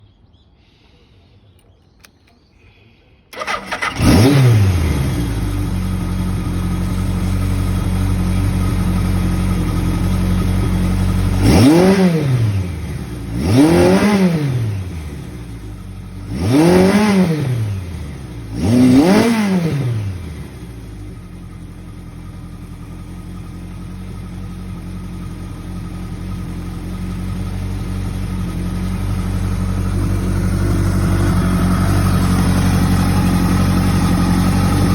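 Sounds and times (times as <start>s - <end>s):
motorcycle engine starting and idling: 1.4s - 2.7s, 3.3s - 34.9s
motorcycle throttle blips: 3.3s - 6.6s.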